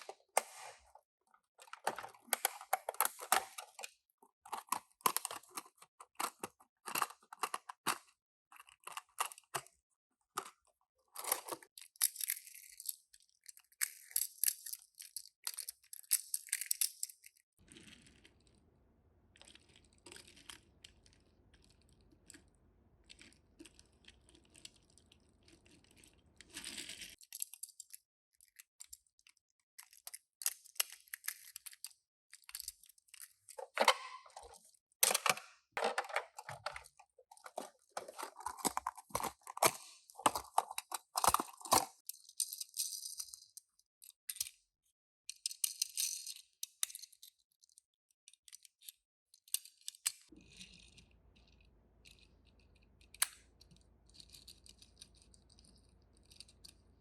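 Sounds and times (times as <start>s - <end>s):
packaging crinkling and tearing: 35.8s - 42.0s.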